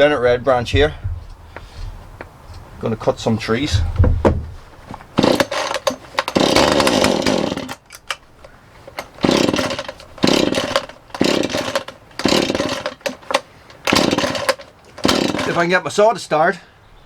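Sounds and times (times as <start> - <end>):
chainsaw engine starting: 5.1 - 15.8.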